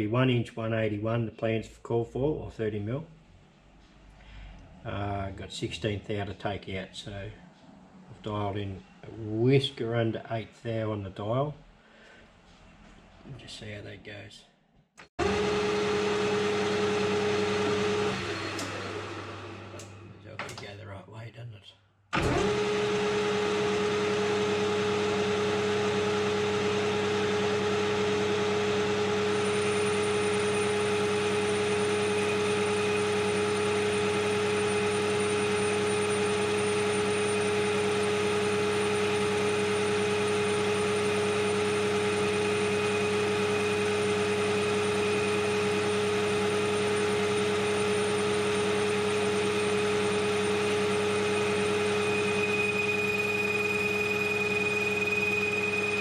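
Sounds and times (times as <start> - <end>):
metal lathe humming and whining: 15.2 - 20.0, 22.2 - 56.0.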